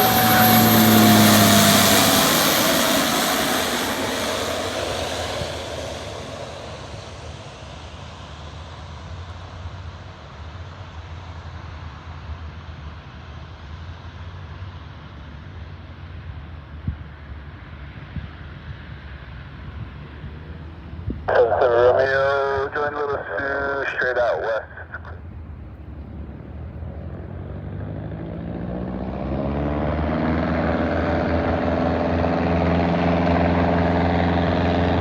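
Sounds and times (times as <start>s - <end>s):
propeller airplane engine: 0.0s - 35.0s.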